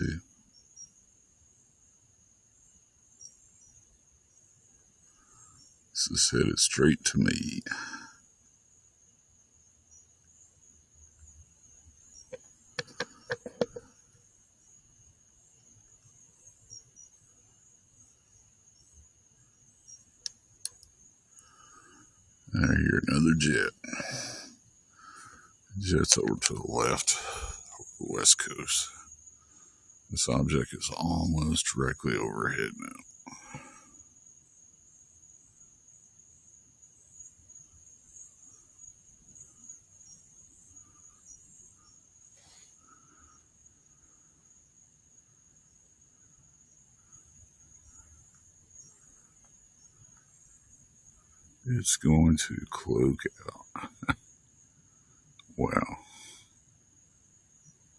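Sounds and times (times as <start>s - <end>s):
insects trilling: 0.0s - 57.9s
high-pitched insect chirring: 11.2s - 14.0s
sharp clicks: 12.8s - 13.8s.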